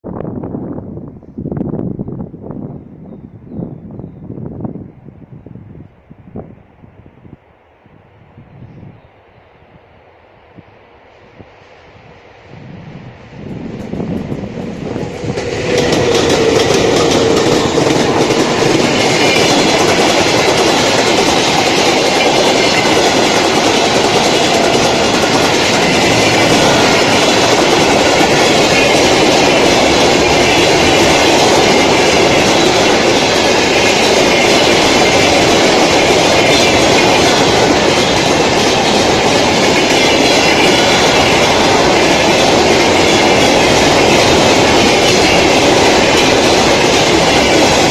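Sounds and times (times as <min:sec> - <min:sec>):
freight train passing: 0:00.0 - 0:47.9
train wheels rolling on rails: 0:10.0 - 0:47.9.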